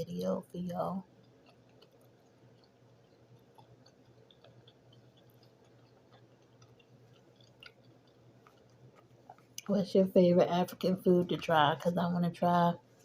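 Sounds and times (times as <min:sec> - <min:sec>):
person chewing food quietly: 0:00.0 - 0:09.8.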